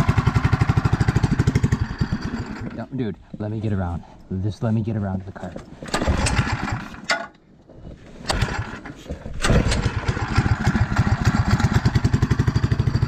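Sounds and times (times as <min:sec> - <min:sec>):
small engine sputtering and starting: 0:00.0 - 0:02.9, 0:05.8 - 0:07.2, 0:08.2 - 0:13.0.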